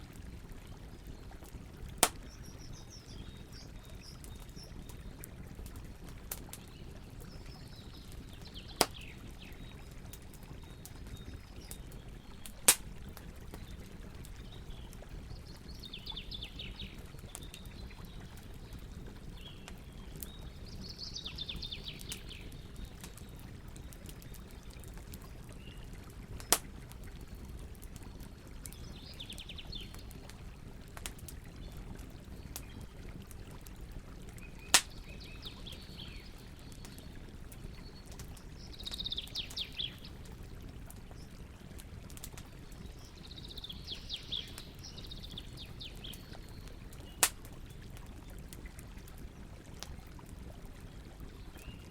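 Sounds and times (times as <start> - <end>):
campfire burning: 0.0 - 51.9
songbirds singing: 0.7 - 30.6, 31.2 - 33.5, 34.3 - 40.4, 42.0 - 48.4, 50.8 - 51.9
burning wood popping: 1.8 - 9.2, 10.1 - 15.8, 26.4 - 27.0, 34.4 - 35.2, 45.8 - 48.6.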